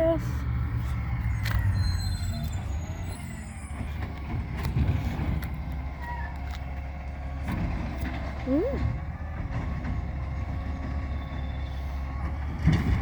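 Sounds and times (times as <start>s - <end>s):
garbage truck engine running: 0.0s - 13.0s
faint squeaks and clicks: 0.9s - 4.8s.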